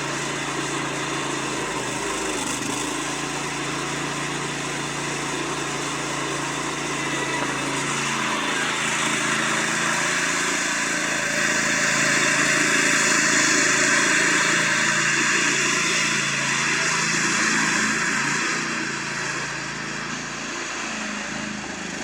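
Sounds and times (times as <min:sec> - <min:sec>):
riding lawn mower engine running: 0:00.0 - 0:22.0.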